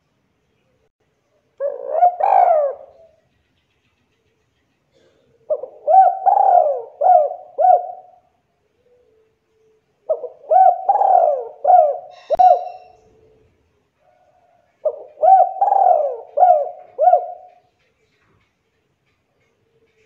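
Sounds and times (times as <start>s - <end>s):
dove cooing: 1.6s - 3.2s, 4.9s - 9.4s, 10.0s - 17.8s.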